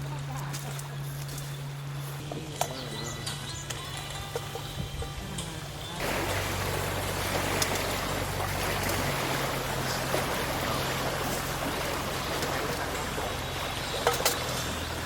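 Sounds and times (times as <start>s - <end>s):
stream of running water: 5.6s - 15.0s.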